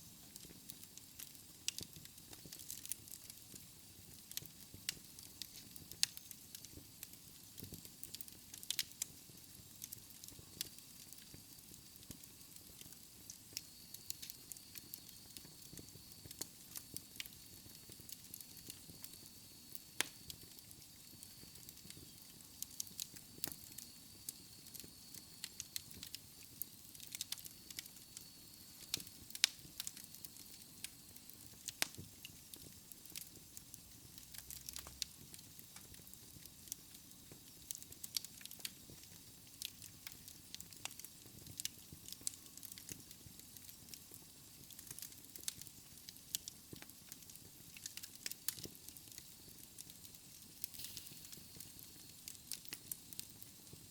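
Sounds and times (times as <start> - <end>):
burning logs popping and snapping: 0.3 - 53.9.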